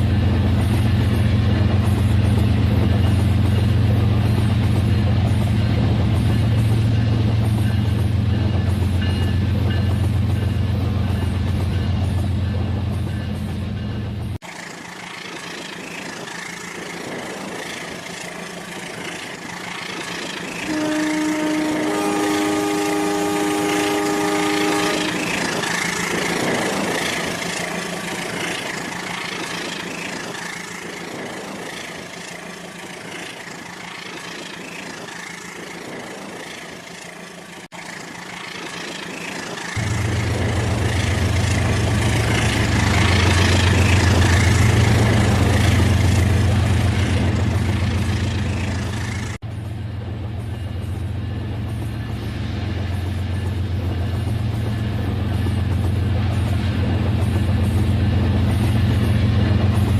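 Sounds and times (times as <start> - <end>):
multi-note train horn: 20.6 - 25.6
loud low engine-like hum: 39.8 - 42.6.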